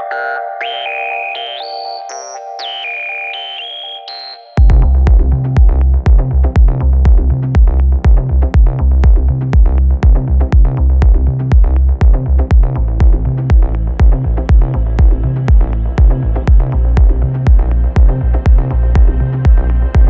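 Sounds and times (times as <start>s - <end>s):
sustained synth chords: 4.6s - 9.5s, 12.5s - 20.0s
deep rolling bass line: 4.6s - 20.0s
kick drum: 4.6s - 20.0s.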